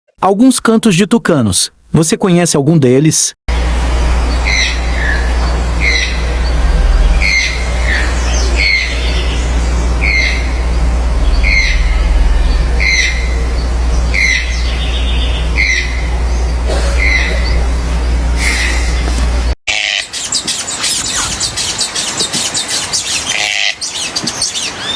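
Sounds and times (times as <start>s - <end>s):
toucan croaking: 4.4s - 19.0s, 23.0s - 24.2s.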